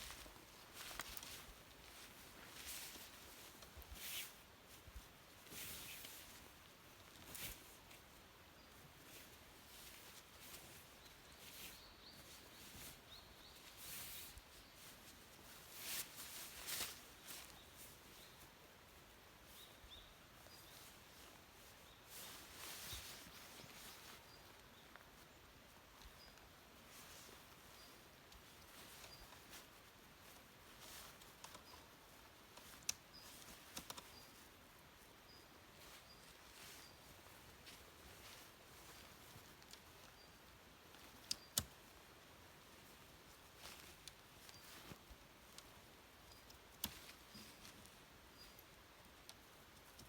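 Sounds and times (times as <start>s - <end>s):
faint sharp clicks: 32.6s - 34.2s, 46.3s - 50.0s.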